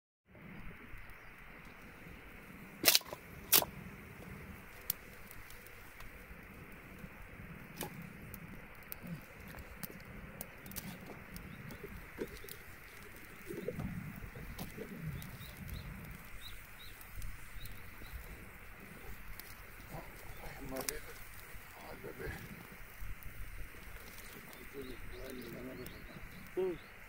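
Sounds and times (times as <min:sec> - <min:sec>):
sharp clicks: 0:02.8 - 0:03.7
bird cooing: 0:10.8 - 0:16.1.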